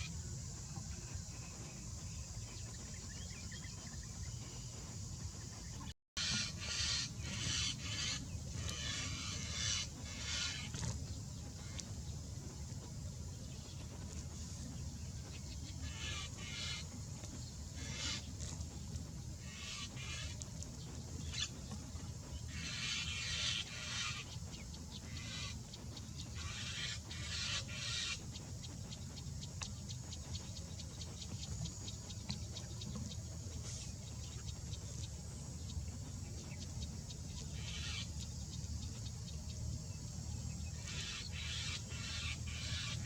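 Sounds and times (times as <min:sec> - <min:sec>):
steady low rumble: 0:00.0 - 0:43.0
birds giving harsh rasping calls: 0:06.2 - 0:11.0, 0:15.7 - 0:17.0, 0:17.8 - 0:18.6, 0:19.4 - 0:20.5, 0:22.5 - 0:24.4, 0:25.0 - 0:25.6, 0:26.4 - 0:28.2, 0:37.6 - 0:38.1, 0:40.8 - 0:43.0.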